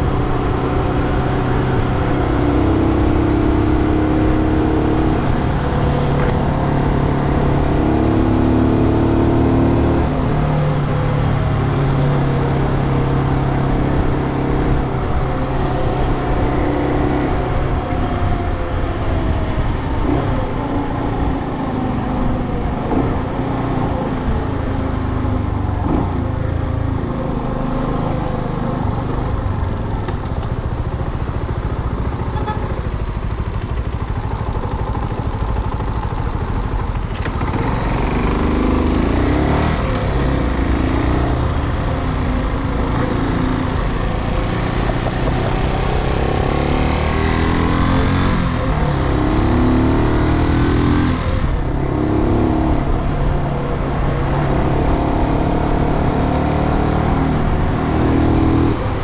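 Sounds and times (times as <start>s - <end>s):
motorcycle engine running: 27.9s - 55.8s.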